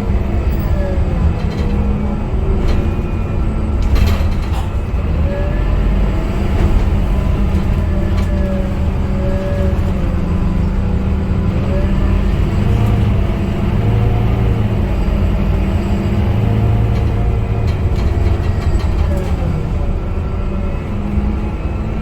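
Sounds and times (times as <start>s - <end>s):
bus engine droning: 0.0s - 22.0s.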